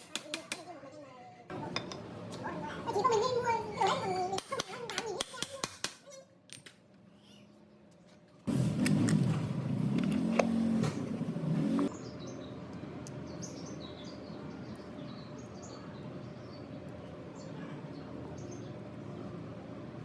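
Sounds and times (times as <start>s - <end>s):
motor humming: 8.5s - 12.2s
small birds chirping: 10.5s - 19.7s.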